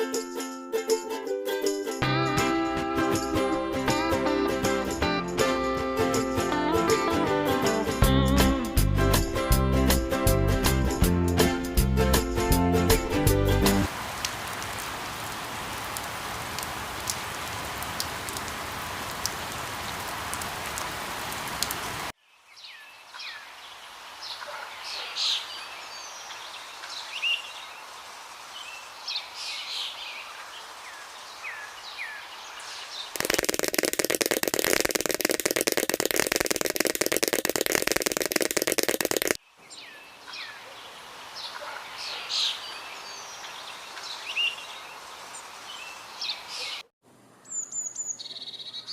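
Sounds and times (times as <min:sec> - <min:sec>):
steady rain-like hiss: 0:13.8 - 0:46.8
wild birds chirping: 0:22.2 - 0:34.0, 0:39.4 - 0:48.9.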